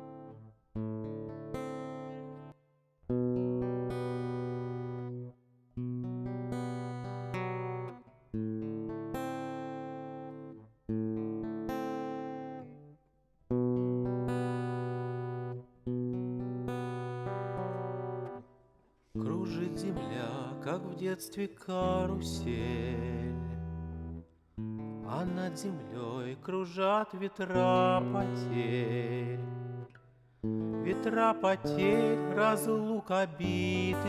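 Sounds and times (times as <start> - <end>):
guitar chords ringing: 30.5 - 34.0.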